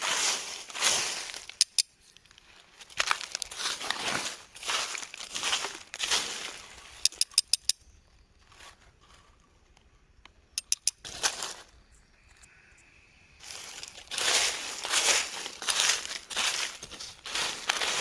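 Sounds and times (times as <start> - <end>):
crinkling rustling handling noise: 0.0 - 7.0, 13.4 - 18.0
sharp clicks: 1.5 - 2.3, 7.0 - 7.9, 9.7 - 11.1.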